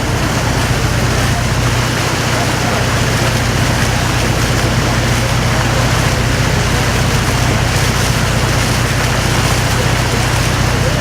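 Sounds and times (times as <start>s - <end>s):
boat engine humming: 0.0s - 11.0s
water noise: 0.0s - 11.0s
wind: 0.0s - 11.0s.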